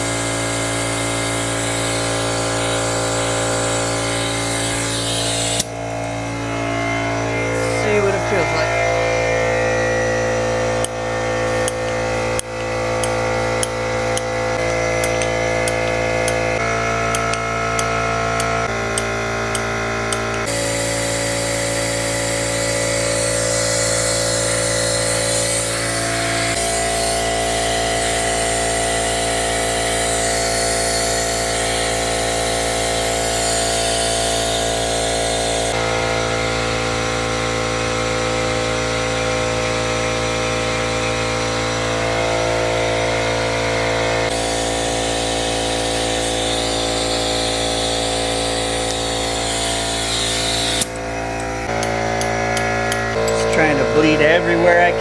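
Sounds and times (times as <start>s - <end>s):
brake bleeder hissing: 0.0s - 9.8s, 20.1s - 55.0s
air compressor running: 0.0s - 55.0s.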